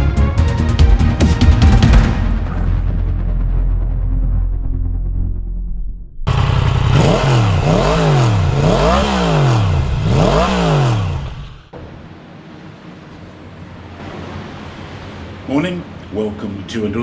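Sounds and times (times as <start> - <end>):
motorcycle engine revving: 6.3 - 11.7.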